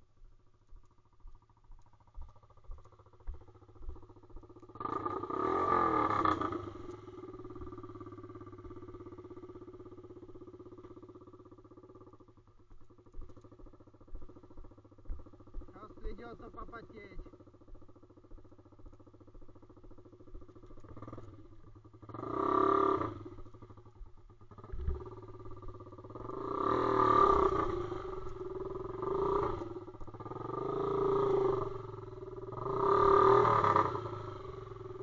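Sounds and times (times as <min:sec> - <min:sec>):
small engine revving: 0:01.7 - 0:11.1, 0:19.8 - 0:35.0.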